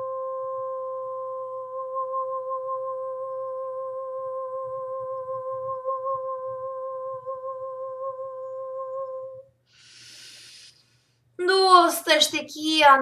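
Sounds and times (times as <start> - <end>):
woman humming a long note: 0.0 - 9.5.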